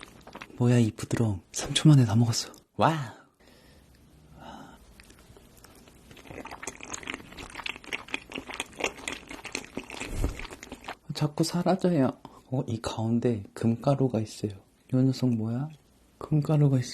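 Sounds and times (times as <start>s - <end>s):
wet chewing and mouth sounds: 0.0s - 0.6s, 4.9s - 11.0s.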